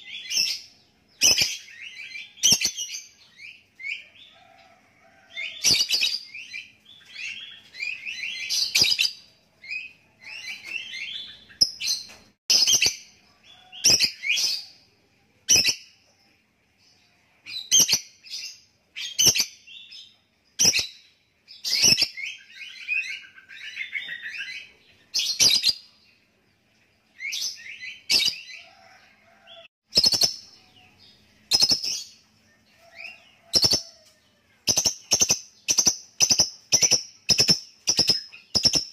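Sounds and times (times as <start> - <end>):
lovebird chattering: 34.6 - 38.9.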